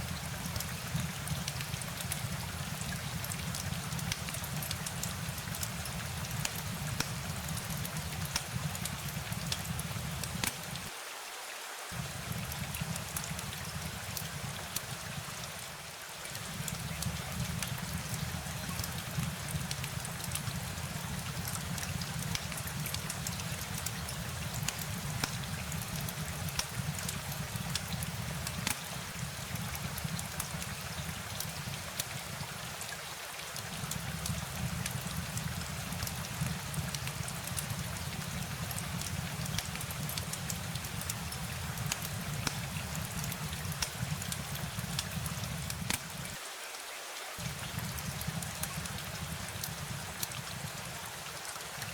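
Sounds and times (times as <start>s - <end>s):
rain drops tapping: 0.0s - 10.9s, 11.9s - 46.4s, 47.4s - 51.9s.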